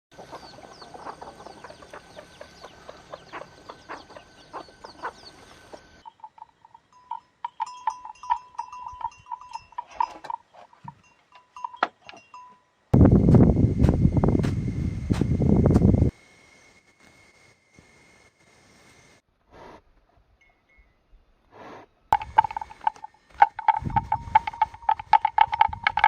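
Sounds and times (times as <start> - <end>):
farm animals calling: 0.1 - 11.1, 21.6 - 26.0
steady background noise: 0.2 - 7.3
scattered clicks: 22.2 - 26.0.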